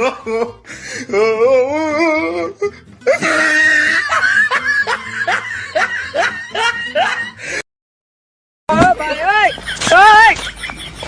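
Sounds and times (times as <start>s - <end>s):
person laughing: 3.1s - 7.6s, 9.2s - 11.0s.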